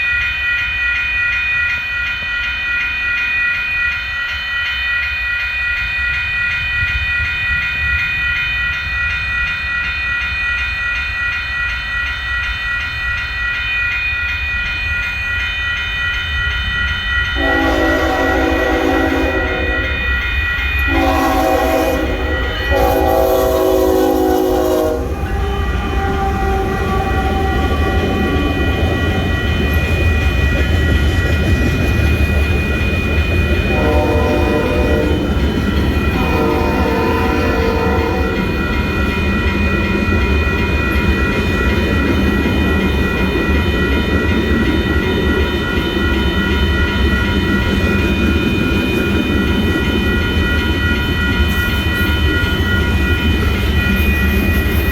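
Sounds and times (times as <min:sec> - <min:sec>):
train rumbling past: 0:05.0 - 0:54.9
train horn blasts: 0:17.4 - 0:20.2, 0:20.8 - 0:29.3, 0:33.7 - 0:35.4, 0:36.0 - 0:38.6.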